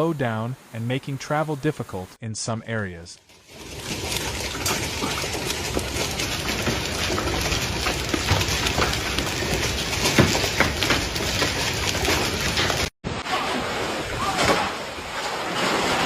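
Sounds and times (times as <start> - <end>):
heavy rain pouring: 3.4 - 16.0.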